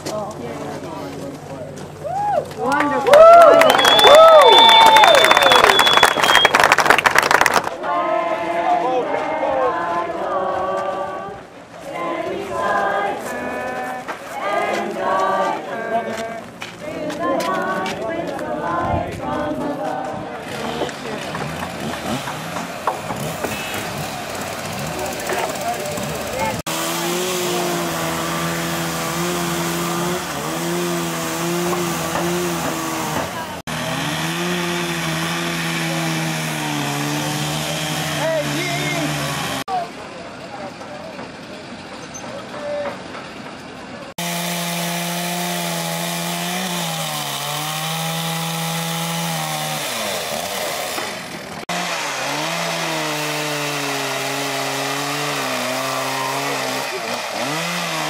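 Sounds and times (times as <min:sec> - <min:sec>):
chainsaw running at high revs: 0:20.5 - 0:39.7, 0:44.2 - 0:58.0.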